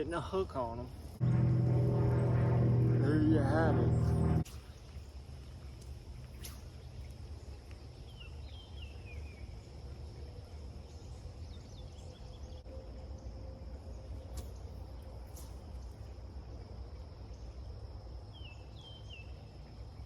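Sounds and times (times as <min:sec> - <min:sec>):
insects droning: 0:00.0 - 0:20.0
low rumble: 0:01.1 - 0:04.5.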